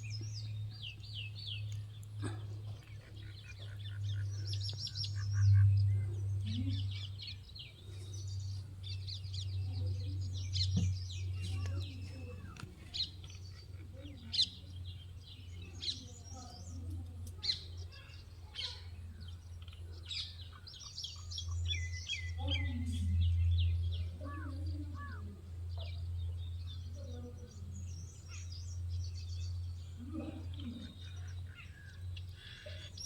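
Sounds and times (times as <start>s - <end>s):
birds chirping and trilling: 0.0s - 33.0s
steady low hum: 0.0s - 33.0s.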